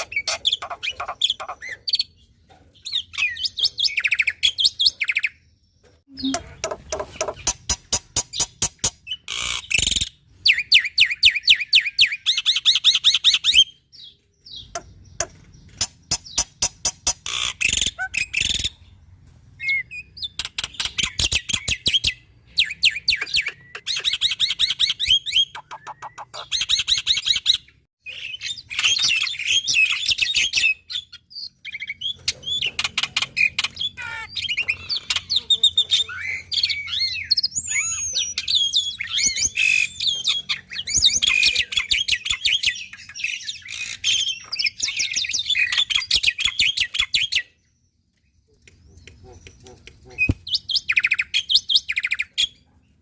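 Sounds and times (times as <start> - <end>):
starling singing: 6.1 - 7.7, 28.1 - 47.4.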